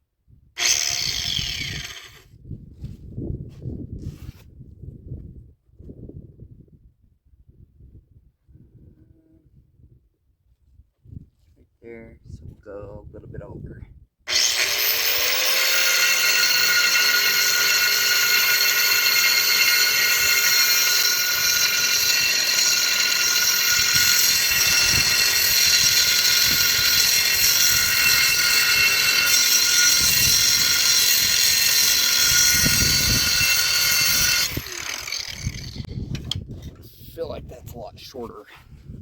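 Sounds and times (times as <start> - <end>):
power tool cutting metal pipe: 0.6 - 2.2, 14.3 - 35.9.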